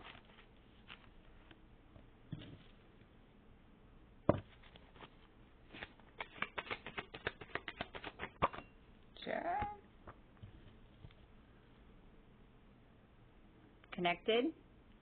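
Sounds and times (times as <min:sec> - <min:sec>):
cards snapping: 0:05.7 - 0:08.6
cards flicking clicks: 0:06.2 - 0:08.5.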